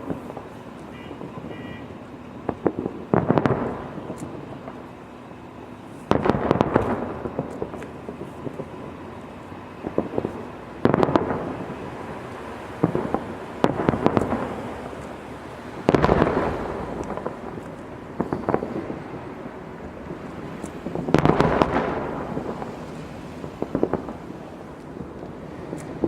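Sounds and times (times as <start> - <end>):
fireworks bangs: 0.0 - 26.0
fireworks crackling: 0.0 - 26.0.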